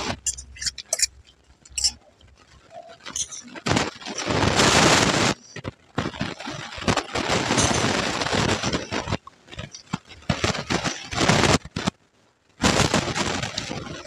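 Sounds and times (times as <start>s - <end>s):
spoon scraping a steel plate: 0.0s - 2.0s, 3.1s - 3.5s
crunchy chewing: 0.0s - 4.5s.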